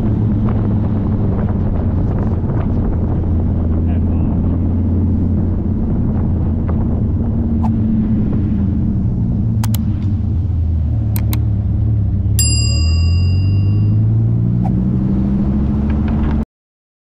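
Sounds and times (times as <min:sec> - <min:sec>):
car engine running: 0:04.6 - 0:15.6
mouse-click sound effects: 0:11.2 - 0:11.4
bell-like ding: 0:12.4 - 0:14.4.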